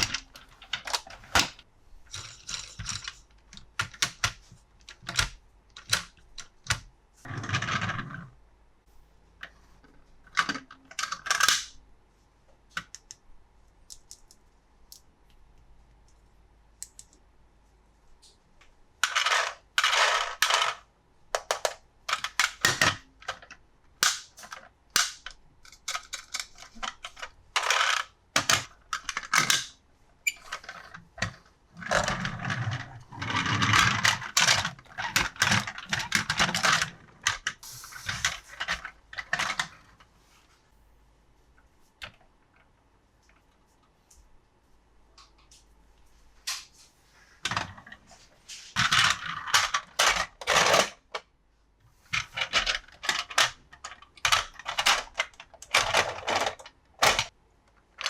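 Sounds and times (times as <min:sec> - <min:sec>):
plastic clicks and snaps: 0:16.8 - 0:17.2.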